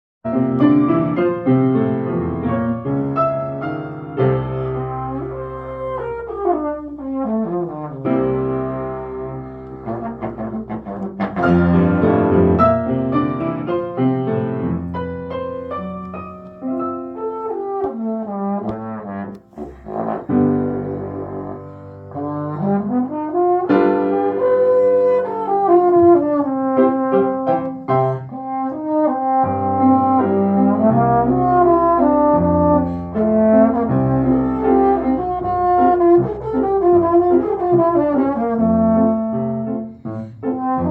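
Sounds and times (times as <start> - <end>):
brass instruments playing: 2.0 - 40.9.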